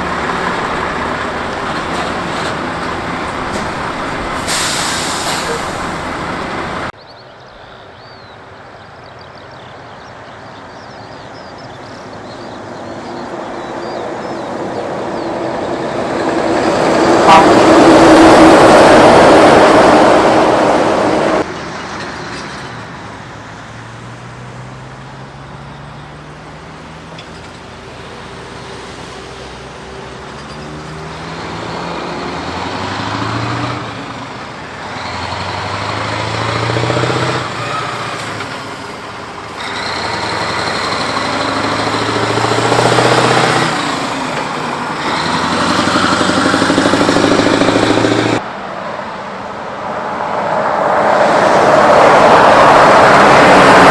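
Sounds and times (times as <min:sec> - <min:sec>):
diesel truck engine shifting gears: 0:00.0 - 0:07.0, 0:11.2 - 0:48.6, 0:49.7 - 0:53.9
loud vehicle sound: 0:00.0 - 0:07.0, 0:08.4 - 0:53.9.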